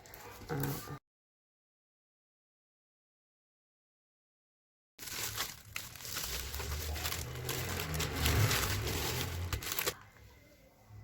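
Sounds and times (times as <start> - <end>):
packaging torn and crinkled: 5.0 - 10.1.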